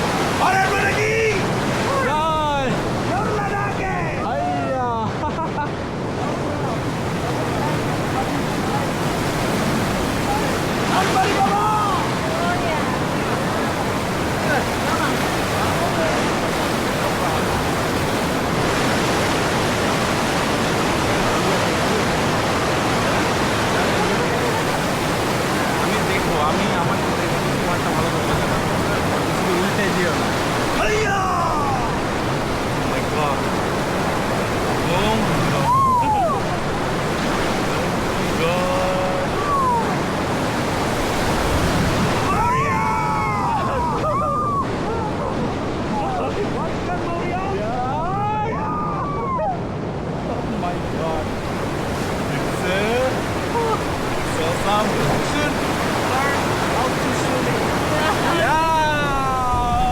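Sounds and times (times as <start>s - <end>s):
river rapids rushing: 0.0s - 59.9s.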